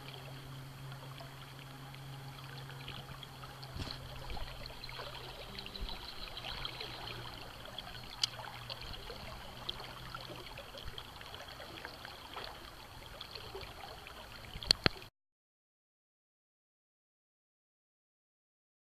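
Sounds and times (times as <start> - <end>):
river water flowing: 0.0 - 15.1
faint clicks: 8.1 - 8.5, 14.6 - 15.0.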